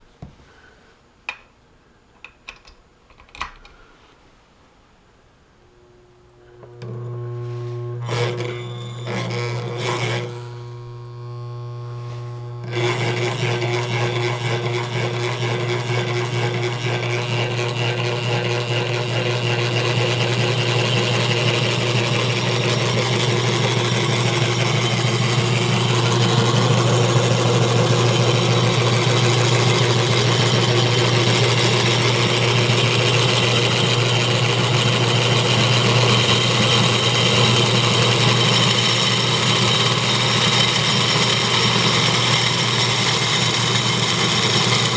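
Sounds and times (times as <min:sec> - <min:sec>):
low hum: 0:05.5 - 0:13.0
electric motor whirring and rattling: 0:05.8 - 0:44.9.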